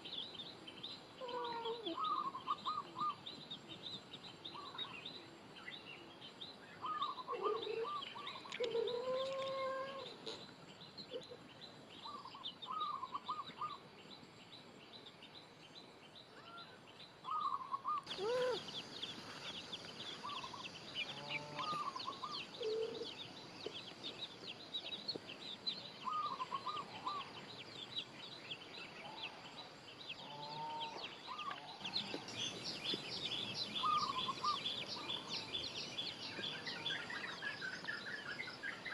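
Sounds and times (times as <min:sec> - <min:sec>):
animal or bird calls: 0:01.2 - 0:03.3, 0:06.7 - 0:13.8, 0:16.3 - 0:24.2, 0:26.0 - 0:27.6, 0:28.9 - 0:38.9.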